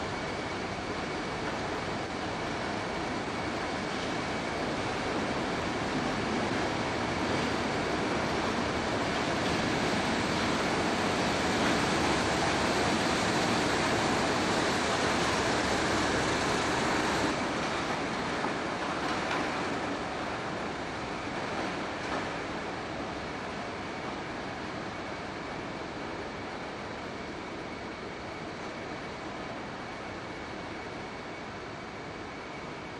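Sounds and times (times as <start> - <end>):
diesel train passing: 0.0 - 23.3.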